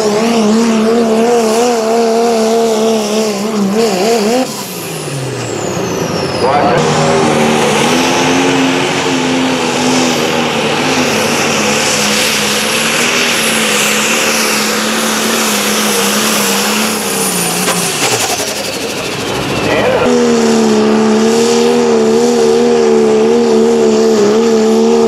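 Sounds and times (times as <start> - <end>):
engine revving under load: 0.0 - 25.0
high whine gliding down: 4.8 - 22.6.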